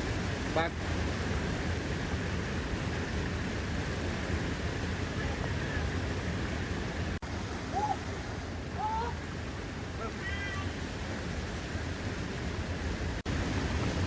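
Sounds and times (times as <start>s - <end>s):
waterfall rushing: 0.0s - 14.0s
faint voice-like sounds: 8.7s - 9.2s.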